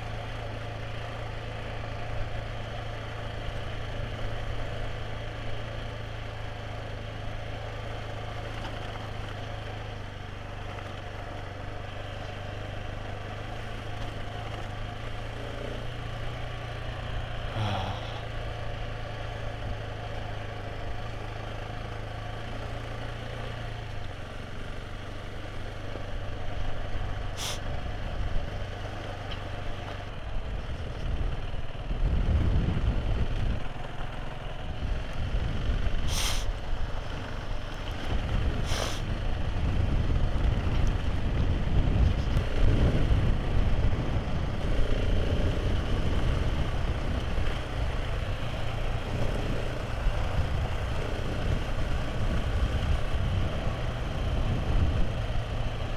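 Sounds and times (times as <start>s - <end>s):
motorcycle engine running: 0.0s - 55.9s
wind buffeting microphone: 38.0s - 44.6s.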